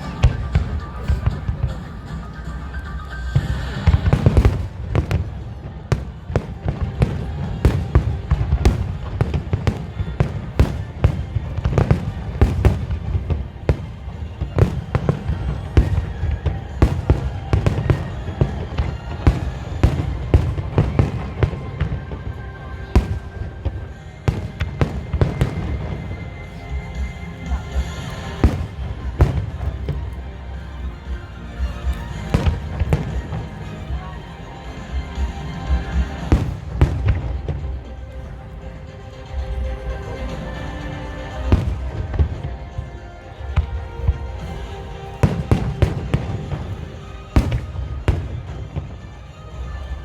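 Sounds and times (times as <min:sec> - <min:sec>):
fireworks bangs: 0:03.3 - 0:30.2, 0:41.2 - 0:50.0.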